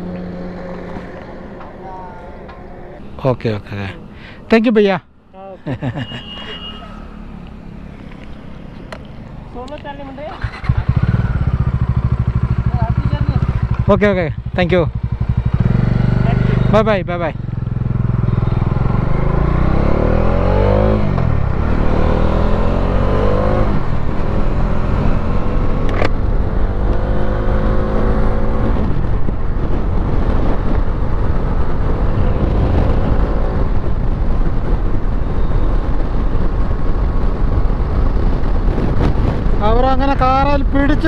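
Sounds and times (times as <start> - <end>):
motorcycle engine accelerating: 10.0 - 41.0
wind noise: 17.4 - 41.0.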